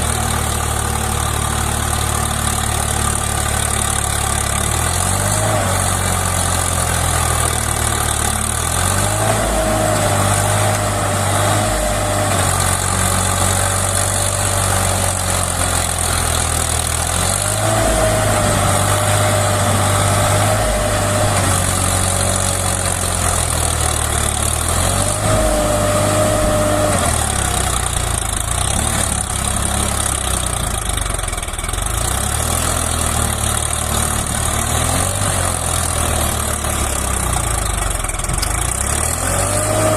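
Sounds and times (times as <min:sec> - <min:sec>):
tractor engine running: 0:00.0 - 0:39.9
high engine whine: 0:07.1 - 0:23.4, 0:24.2 - 0:31.9.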